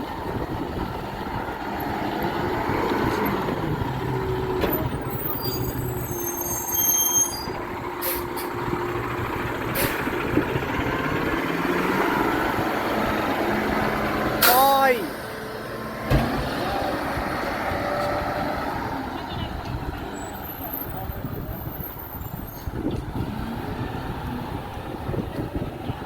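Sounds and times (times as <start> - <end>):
garbage truck engine running: 0.0 - 14.4, 18.6 - 26.0
high-pitched squeal: 4.1 - 8.5.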